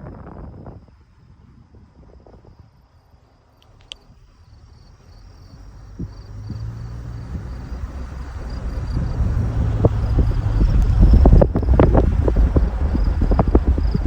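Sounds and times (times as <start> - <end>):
insects trilling: 2.5 - 14.0
low rumble: 3.6 - 14.0.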